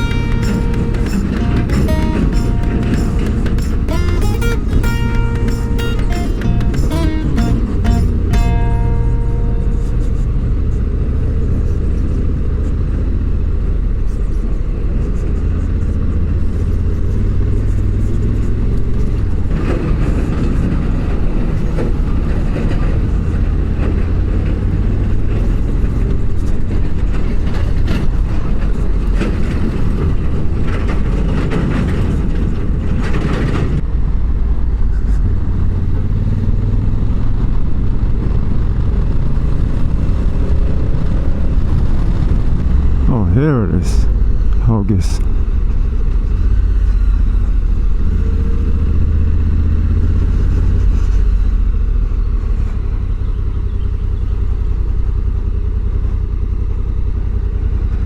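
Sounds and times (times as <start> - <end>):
motorcycle engine running: 0.0 - 14.2
wind and road noise: 9.7 - 58.0.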